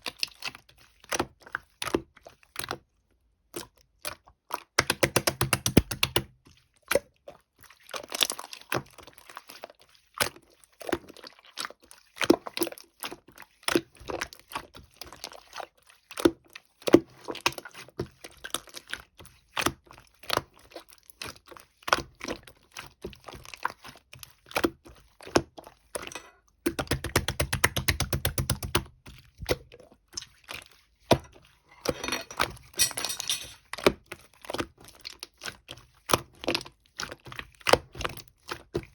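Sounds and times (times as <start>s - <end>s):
sharp clicks and taps: 4.8s - 6.2s, 26.7s - 28.9s.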